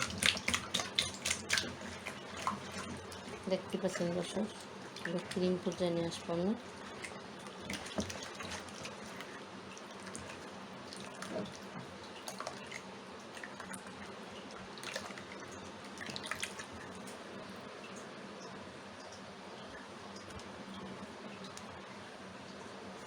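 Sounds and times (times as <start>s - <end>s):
wet mixture squishing: 0.0s - 14.0s.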